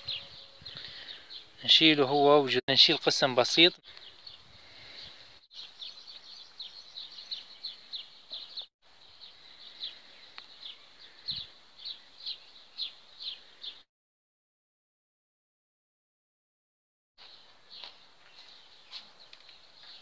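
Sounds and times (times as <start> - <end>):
bird chirping: 0.0 - 2.2, 2.8 - 13.8, 17.2 - 20.0.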